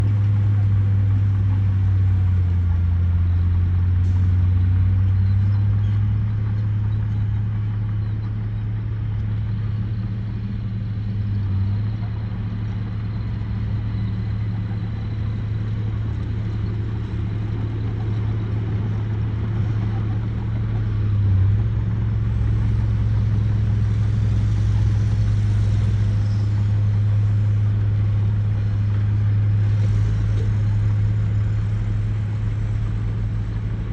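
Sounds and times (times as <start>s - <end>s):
truck diesel engine droning: 0.0s - 33.9s.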